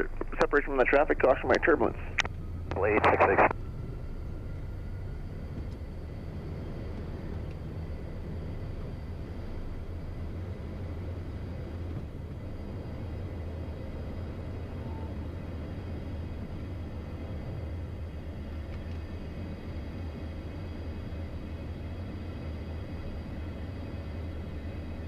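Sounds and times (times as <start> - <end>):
rush of noise: 0.0 - 3.6
jet engines humming: 0.0 - 25.0.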